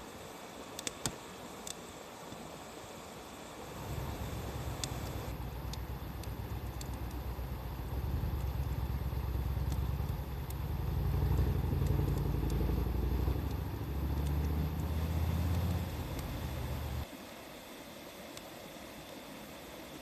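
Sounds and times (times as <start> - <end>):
faint wood fire crackles: 0.0 - 17.1, 18.0 - 20.0
motor vehicle engine rumble: 3.7 - 17.0.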